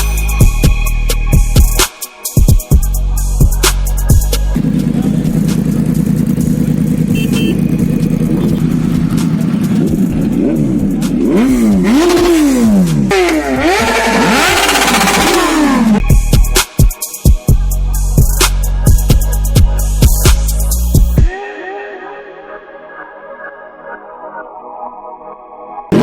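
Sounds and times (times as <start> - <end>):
motorcycle engines revving: 4.6 - 16.0.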